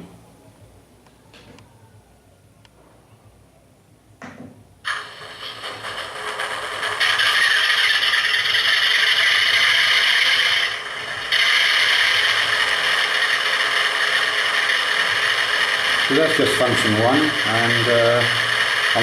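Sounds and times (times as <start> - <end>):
diesel engine sound from small speaker: 4.9 - 19.0.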